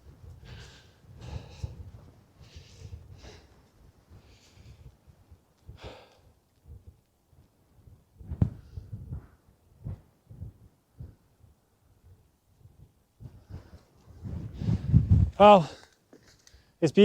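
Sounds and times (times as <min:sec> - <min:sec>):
person breathing hard: 0:00.3 - 0:04.9, 0:05.7 - 0:06.4.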